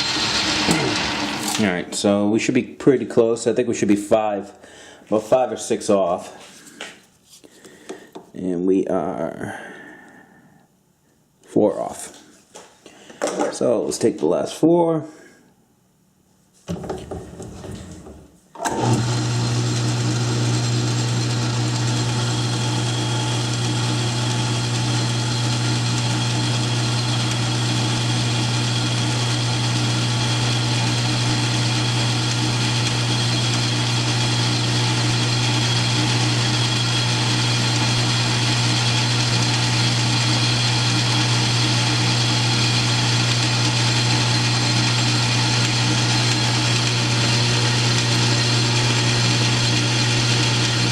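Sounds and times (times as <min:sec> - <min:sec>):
metal lathe motor hum: 0:00.0 - 0:01.6, 0:18.6 - 0:50.9.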